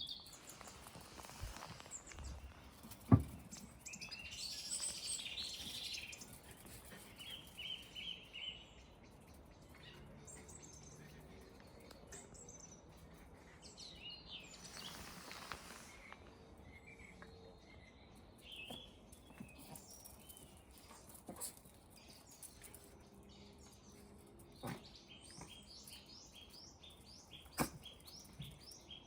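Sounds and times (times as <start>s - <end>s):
birds chirping and singing: 0.0s - 20.4s.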